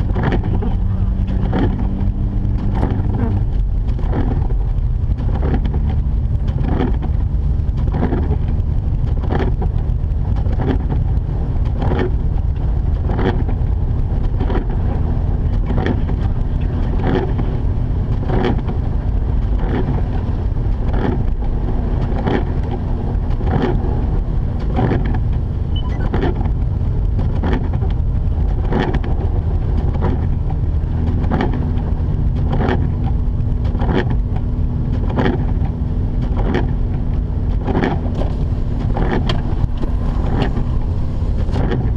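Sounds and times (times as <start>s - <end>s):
car engine drone: 0.0s - 41.9s
road noise: 0.0s - 41.9s.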